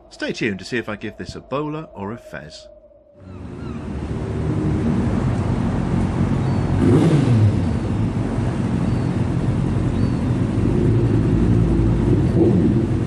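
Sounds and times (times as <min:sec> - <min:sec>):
motorcycle engine running: 0:03.8 - 0:13.0.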